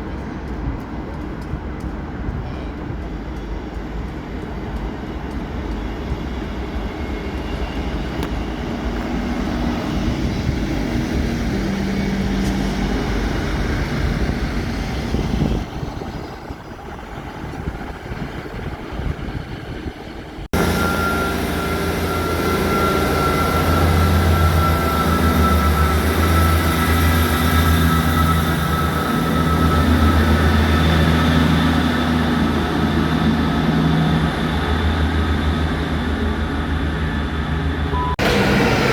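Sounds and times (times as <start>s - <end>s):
train engine low hum: 0.0s - 38.9s
train rushing noise: 0.0s - 38.9s
high whine: 20.5s - 35.7s.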